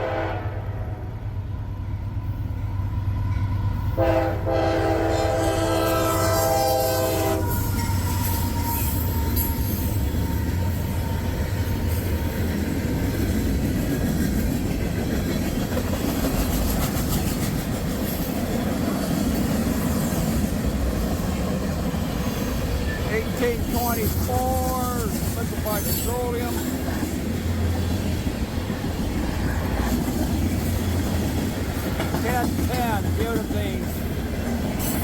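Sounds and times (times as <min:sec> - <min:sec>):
train horn chord: 0:00.0 - 0:01.1, 0:04.0 - 0:07.7
train rumbling past: 0:00.0 - 0:35.0.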